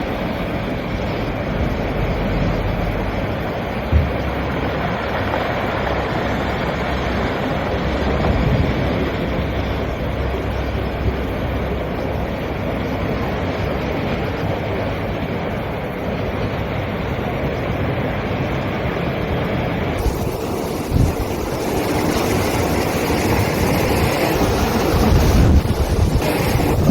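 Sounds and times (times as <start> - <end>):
wind buffeting microphone: 0.0 - 26.9
sea waves washing against rocks: 3.2 - 11.6, 19.0 - 26.9.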